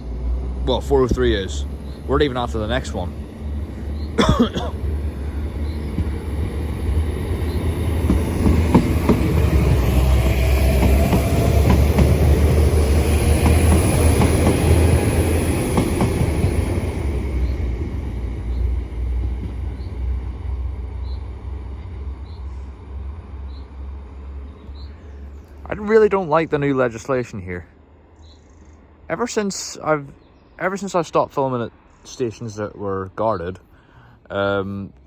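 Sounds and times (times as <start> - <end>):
high engine whine: 0.0 - 25.7
diesel train passing: 0.0 - 35.0
wheels clicking over rail joints: 0.8 - 18.6.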